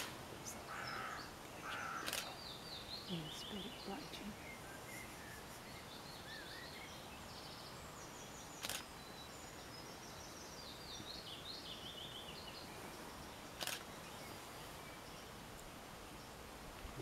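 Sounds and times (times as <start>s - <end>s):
songbird singing: 0.0s - 17.0s
steady outdoor hiss: 0.0s - 17.0s
sharp clicks: 2.0s - 2.4s, 8.6s - 8.9s, 13.6s - 13.9s.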